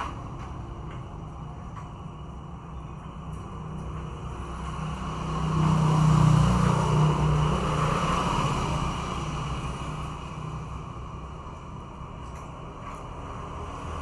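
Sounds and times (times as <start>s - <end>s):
motor vehicle passing by: 4.9s - 10.5s.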